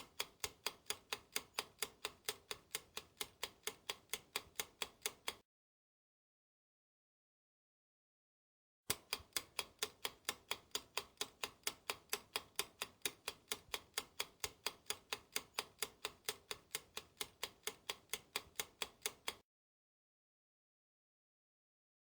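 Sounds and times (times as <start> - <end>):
steady clock ticking: 0.0 - 5.4, 8.9 - 19.4.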